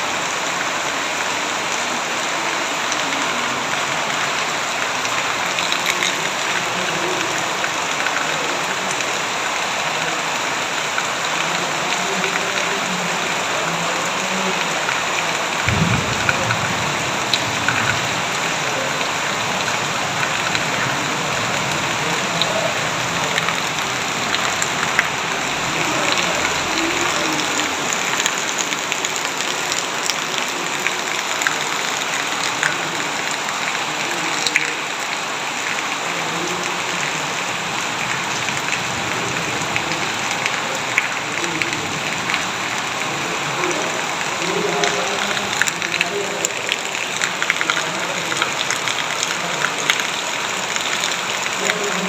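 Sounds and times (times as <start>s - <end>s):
heavy rain falling: 0.0s - 52.0s
raindrops ticking: 0.1s - 52.0s
low rumble: 15.6s - 18.6s.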